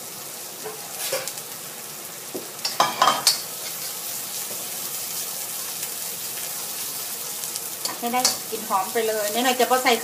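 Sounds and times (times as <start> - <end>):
curry paste sizzling in oil: 0.0 - 10.0
spatula scraping and clanking pan: 0.6 - 1.4, 2.6 - 5.3.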